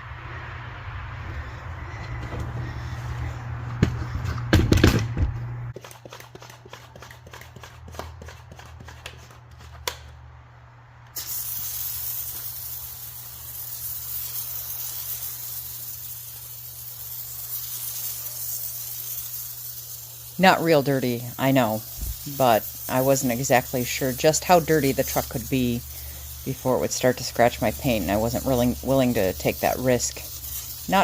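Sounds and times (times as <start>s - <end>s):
foam sprayer hissing: 11.1s - 31.0s.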